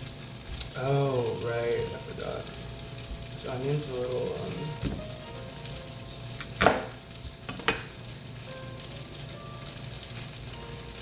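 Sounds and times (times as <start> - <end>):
faint background music: 0.4 - 11.0
knife knocking on cutting board: 4.8 - 5.1.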